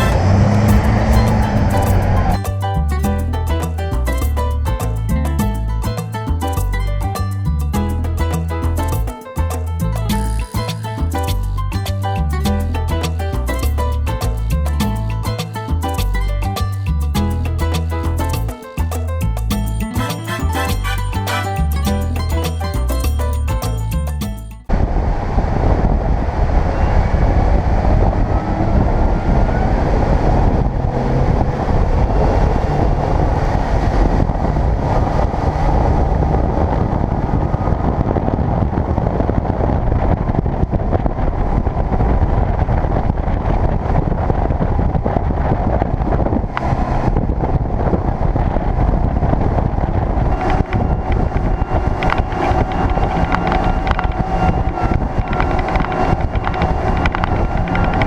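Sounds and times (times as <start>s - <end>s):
wind buffeting microphone: 0.0s - 2.5s, 24.7s - 58.0s.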